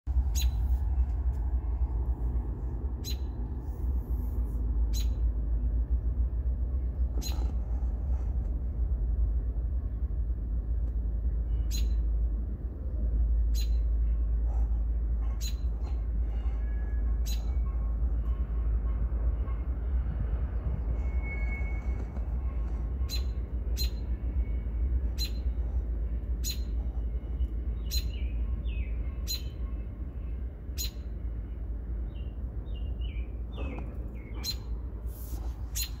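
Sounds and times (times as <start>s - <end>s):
steady low rumble: 0.1s - 36.0s
sliding bird calls: 7.1s - 8.3s, 14.5s - 18.2s, 33.5s - 36.0s.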